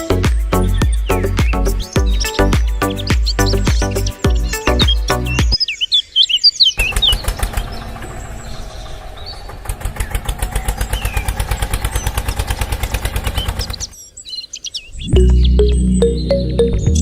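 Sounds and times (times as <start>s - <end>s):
small engine chugging: 6.8s - 14.0s.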